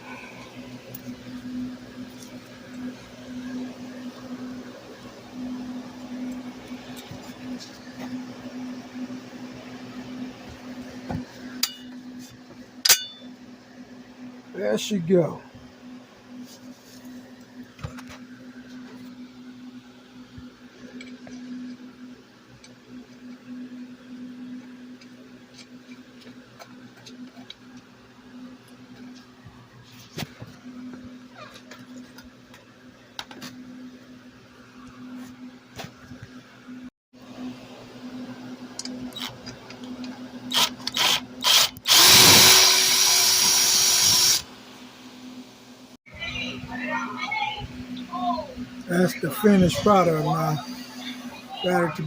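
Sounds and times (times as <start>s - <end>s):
power drill driving a screw: 40.5s - 44.5s.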